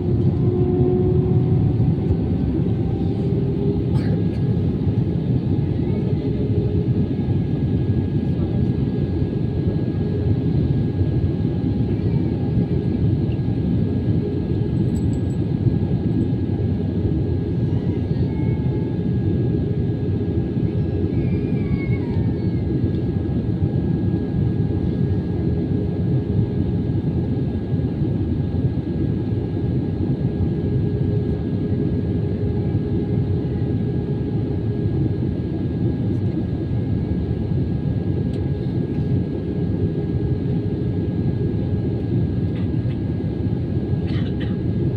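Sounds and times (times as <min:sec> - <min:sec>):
jet engine whine: 0:00.0 - 0:44.9.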